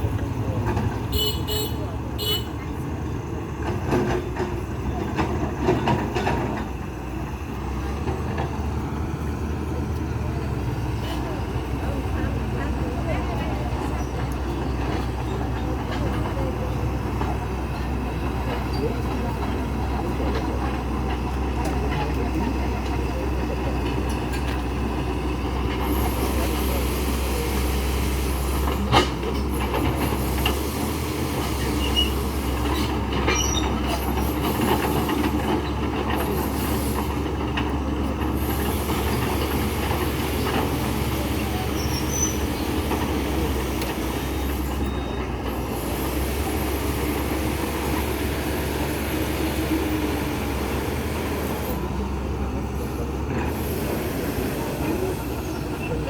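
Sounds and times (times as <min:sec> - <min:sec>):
engines running: 0:00.0 - 0:56.0
metallic squealing and clattering: 0:31.8 - 0:34.5, 0:41.8 - 0:42.6.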